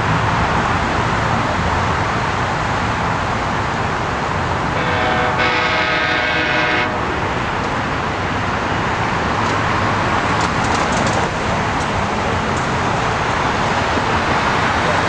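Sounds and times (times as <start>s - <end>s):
passing train rumble: 0.0s - 15.0s
train horn chord: 4.8s - 7.3s.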